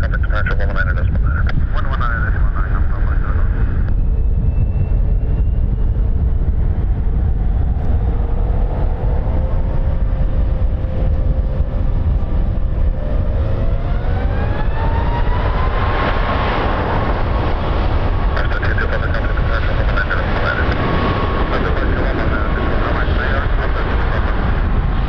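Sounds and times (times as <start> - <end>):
aircraft engines at takeoff: 0.0 - 25.0.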